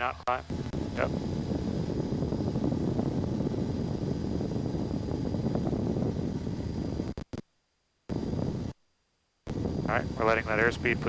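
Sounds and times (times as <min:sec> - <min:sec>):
light aircraft engine and propeller: 0:00.0 - 0:07.1, 0:09.5 - 0:11.0.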